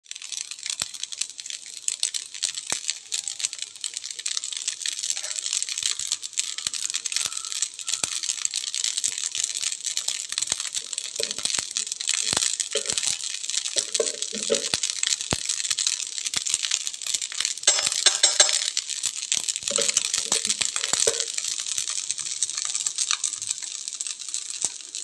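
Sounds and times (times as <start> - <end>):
flour mixture sizzling in a pan: 0.0 - 25.0
spatula scraping and tapping pan: 5.1 - 5.6, 11.1 - 11.6, 12.3 - 14.9, 17.7 - 18.8, 19.6 - 21.5.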